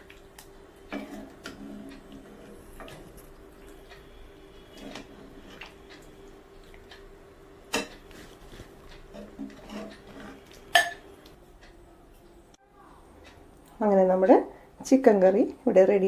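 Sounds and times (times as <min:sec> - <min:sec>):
faint steady hum: 0:00.0 - 0:16.0
utensil clinking against pot: 0:09.0 - 0:11.1.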